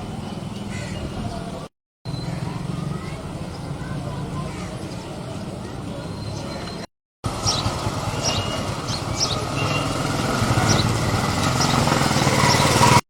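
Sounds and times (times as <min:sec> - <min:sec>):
vehicle engine running: 0:07.2 - 0:13.0.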